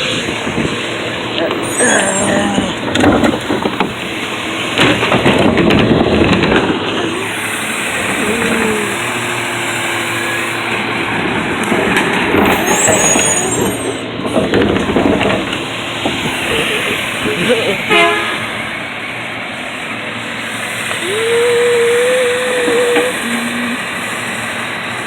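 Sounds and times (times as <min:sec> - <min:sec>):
garbage truck engine: 0:00.0 - 0:25.0
high squeals: 0:01.4 - 0:04.2, 0:12.4 - 0:14.4, 0:20.9 - 0:24.6.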